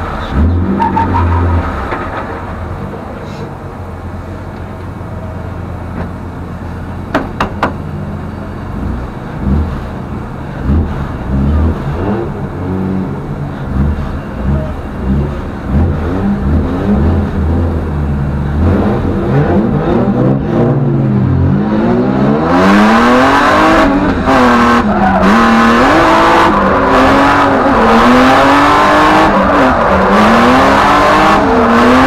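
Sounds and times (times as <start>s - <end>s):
car engine idling and revving: 0.0s - 32.0s.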